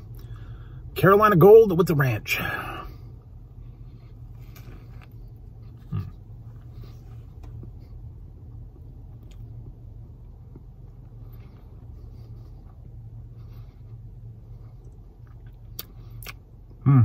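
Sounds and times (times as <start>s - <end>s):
low car interior hum: 0.0s - 17.0s
man chewing: 3.4s - 16.8s.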